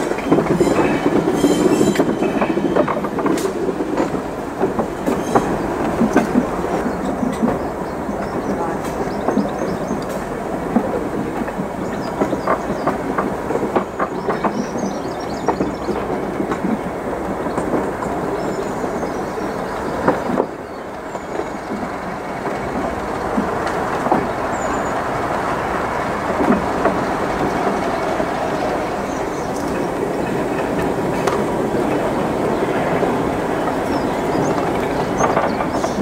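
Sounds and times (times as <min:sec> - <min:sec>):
train wheels clattering over joints: 0:00.0 - 0:36.0.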